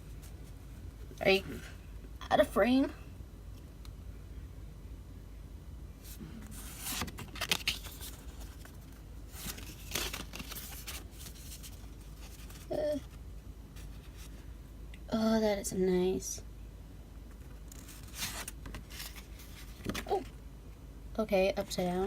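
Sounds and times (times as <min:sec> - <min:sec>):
packaging rustling and tearing: 0:06.5 - 0:13.2, 0:17.4 - 0:20.3.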